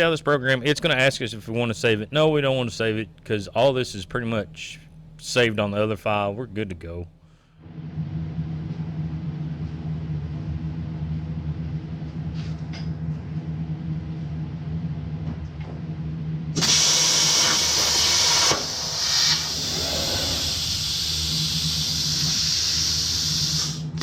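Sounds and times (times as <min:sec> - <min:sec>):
low hum: 0:00.0 - 0:15.3
plasma torch cutting steel: 0:16.6 - 0:23.8.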